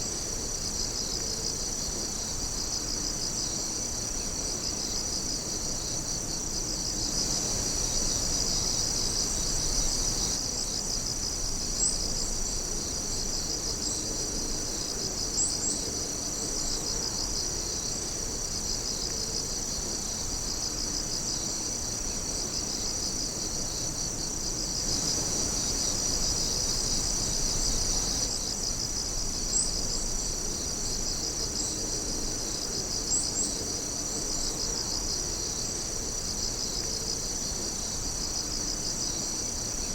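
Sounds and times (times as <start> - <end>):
crickets trilling: 0.0 - 39.9
sharp insect chirps: 23.6 - 31.8.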